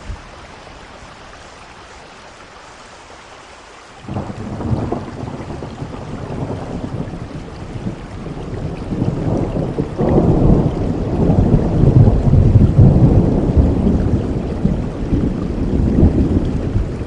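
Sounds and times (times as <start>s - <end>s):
steady rainfall: 0.0s - 17.0s
low rumble of thunder: 4.1s - 17.0s.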